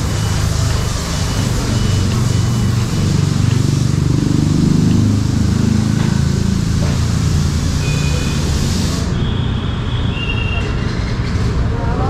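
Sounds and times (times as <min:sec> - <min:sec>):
wind and road noise: 0:00.0 - 0:07.9
motorcycle engine running: 0:00.0 - 0:08.8.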